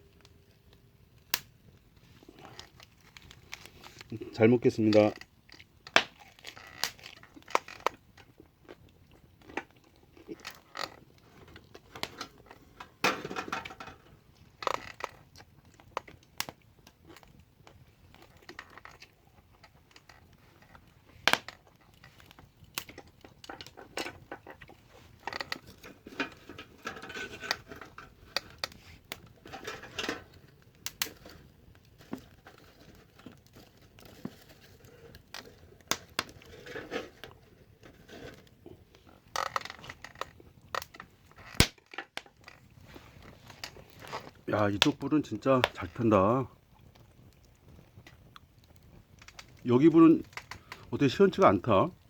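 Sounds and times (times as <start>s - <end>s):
person chewing: 9.8s - 10.7s.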